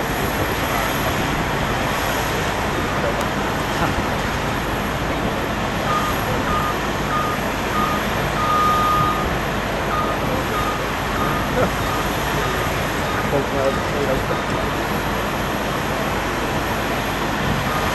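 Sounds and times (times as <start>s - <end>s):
airport engine roar: 0.0s - 17.9s
vehicle reversing beeper: 5.8s - 14.8s, 17.6s - 17.9s.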